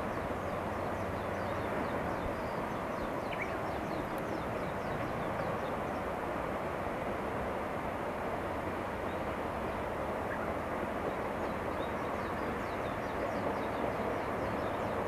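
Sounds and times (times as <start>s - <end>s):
distant diesel locomotive rumble: 0.0s - 15.0s
small birds chirping: 0.4s - 6.0s.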